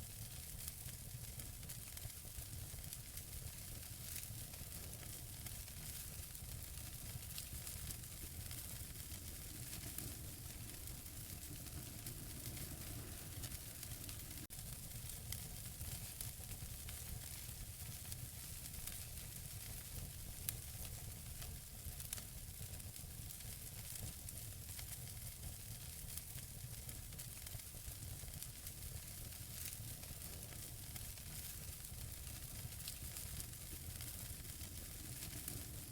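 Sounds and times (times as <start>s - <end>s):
wood fire crackling: 0.1s - 35.9s.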